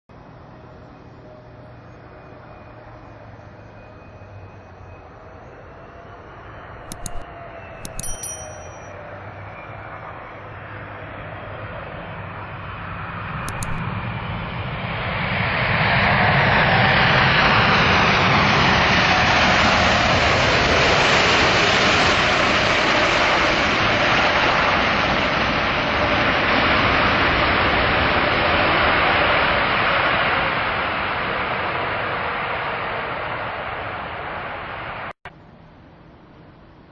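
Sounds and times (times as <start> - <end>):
sharp high clicks: 6.8 - 7.2, 7.8 - 8.9, 13.4 - 13.8
jet airliner engines: 18.1 - 35.1.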